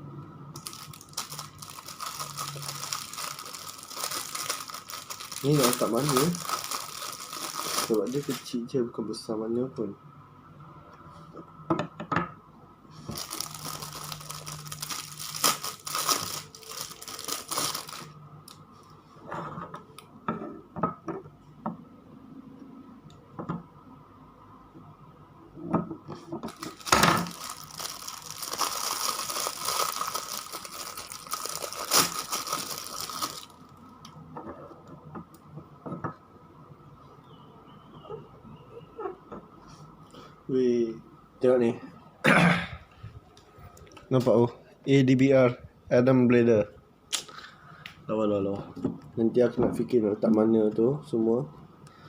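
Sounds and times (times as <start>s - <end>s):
packaging tearing and crinkling: 0.6s - 8.6s, 13.1s - 18.2s, 26.5s - 33.6s.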